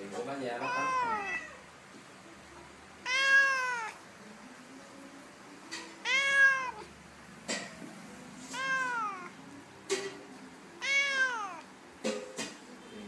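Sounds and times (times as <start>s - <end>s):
cat meowing: 0.6s - 1.7s, 3.0s - 4.0s, 6.0s - 7.0s, 8.4s - 9.4s, 10.8s - 11.7s.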